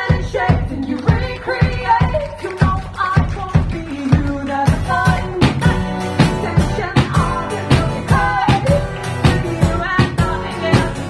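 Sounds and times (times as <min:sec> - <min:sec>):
person singing: 0:00.0 - 0:11.0
live rock band playing: 0:04.7 - 0:11.0.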